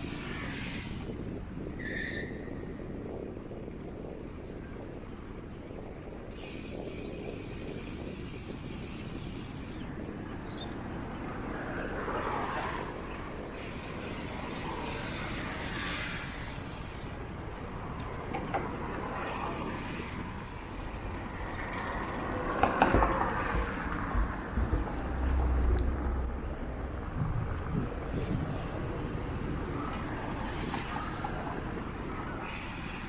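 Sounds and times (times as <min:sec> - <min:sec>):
bicycle rolling on wet path: 0:10.8 - 0:22.6.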